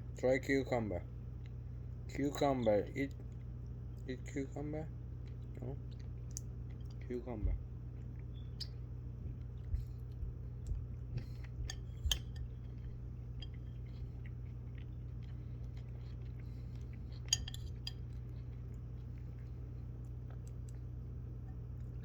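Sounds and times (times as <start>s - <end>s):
steady low hum: 0.0s - 22.0s
parrot chewing cucumber: 5.1s - 22.0s.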